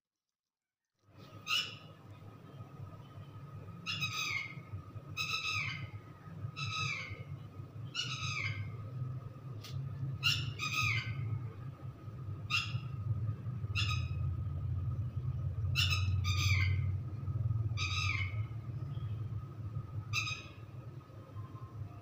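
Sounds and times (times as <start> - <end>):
low steady hum: 1.0 - 22.0
bird giving falling calls: 15.6 - 18.6.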